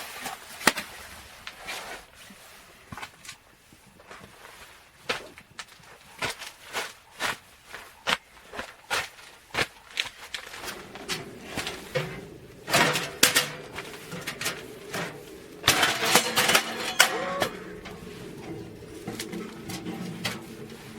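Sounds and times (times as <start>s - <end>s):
steady hum: 10.6s - 20.9s.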